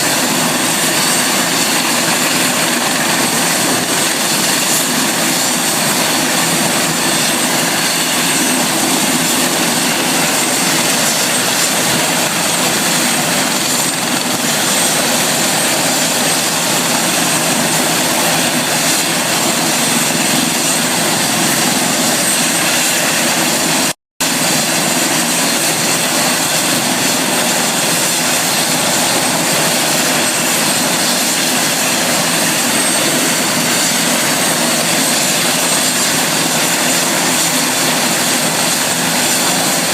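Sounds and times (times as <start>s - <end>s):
helicopter drone: 0.0s - 39.9s.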